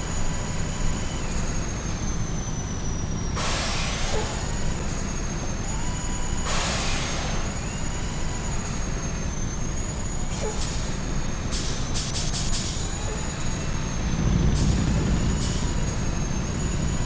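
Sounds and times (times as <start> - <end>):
truck engine and road rumble: 0.0 - 17.0
high-pitched whine: 11.1 - 17.0.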